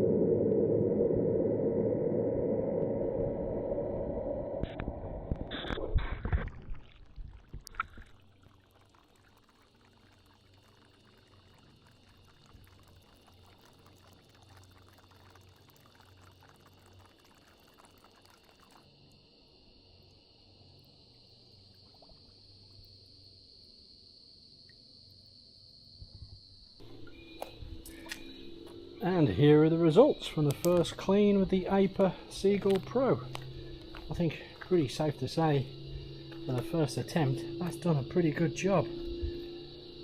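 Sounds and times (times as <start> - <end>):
insect chirring: 0.0 - 40.0
water pouring and splashing: 5.7 - 19.2.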